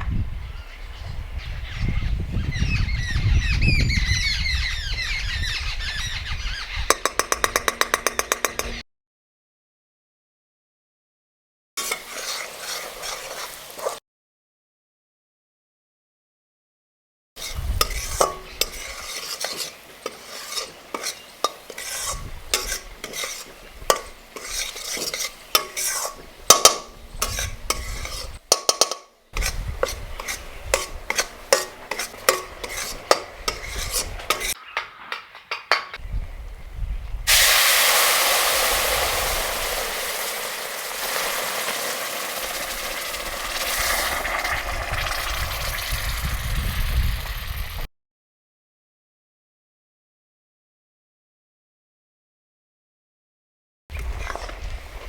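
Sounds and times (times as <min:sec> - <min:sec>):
utensil scraping metal pot: 0:06.8 - 0:08.8, 0:11.8 - 0:14.0, 0:17.4 - 0:34.6, 0:39.1 - 0:46.2, 0:53.9 - 0:55.0
food sizzling in hot oil: 0:11.8 - 0:14.0, 0:17.4 - 0:34.6, 0:37.3 - 0:47.9.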